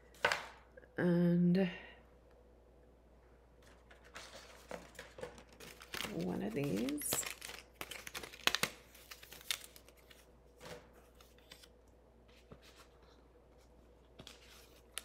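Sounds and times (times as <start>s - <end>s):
paper rustling: 3.6s - 11.7s, 12.3s - 15.0s.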